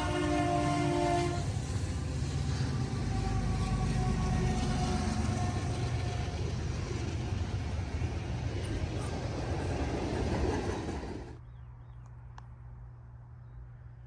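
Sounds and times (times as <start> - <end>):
freight train wheels rumbling: 0.0 - 11.7.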